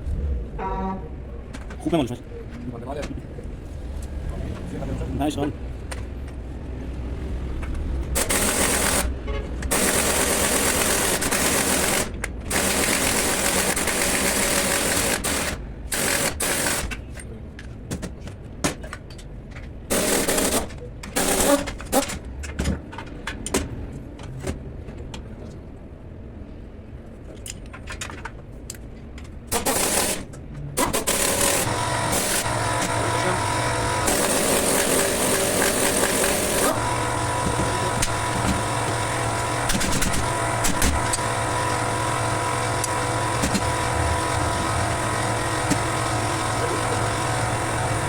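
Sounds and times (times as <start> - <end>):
pneumatic impact wrench rattling: 8.1 - 9.1, 9.7 - 17.0, 19.9 - 22.2, 29.5 - 48.0
tools and parts clicking: 27.3 - 33.0.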